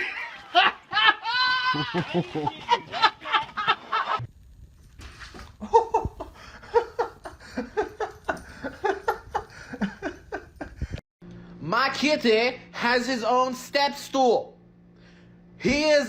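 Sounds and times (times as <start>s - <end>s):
person laughing: 0.0s - 4.2s, 5.4s - 11.0s.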